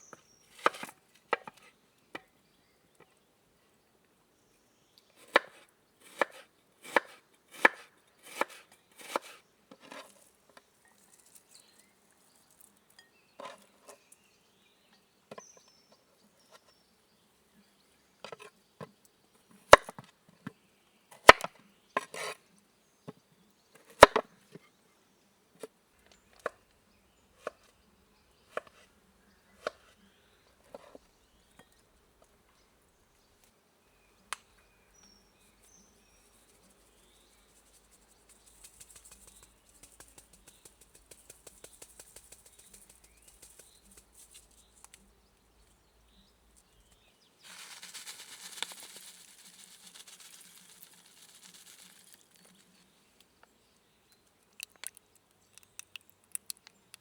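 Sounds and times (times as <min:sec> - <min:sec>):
chopping wood: 0:21.2 - 0:21.5, 0:23.9 - 0:24.3.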